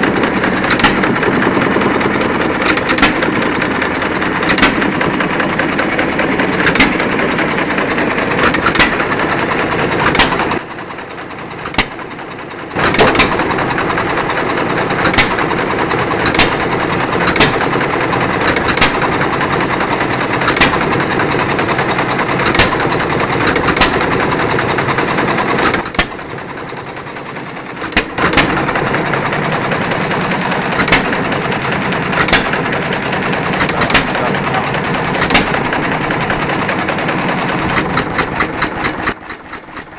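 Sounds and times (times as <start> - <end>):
engine clatter: 0.0 - 39.9
engine firing bangs: 12.8 - 21.7, 27.8 - 39.1.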